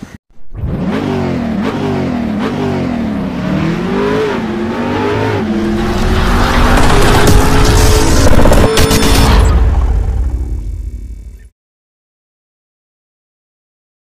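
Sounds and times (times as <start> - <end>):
motorcycle engines revving: 0.6 - 8.8.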